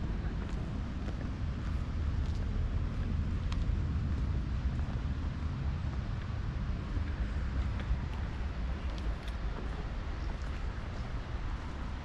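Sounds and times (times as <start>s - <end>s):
outdoor ambience: 0.0s - 12.0s
wind rumbling on microphone: 0.0s - 12.0s.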